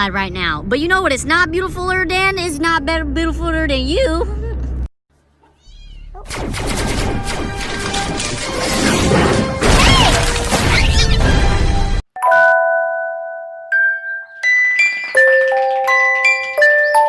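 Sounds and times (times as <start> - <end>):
glockenspiel-like melody: 12.2 - 17.0
two-note ding-dong chime: 12.2 - 17.0.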